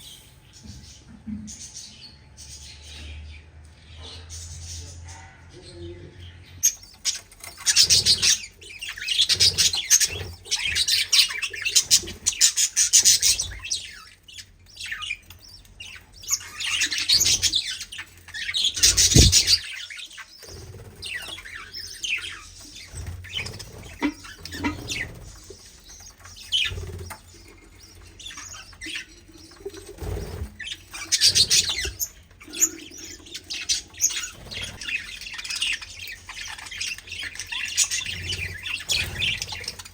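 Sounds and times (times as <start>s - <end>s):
cage birds chirping: 0.0s - 39.9s
short dull thumps: 18.9s - 19.6s.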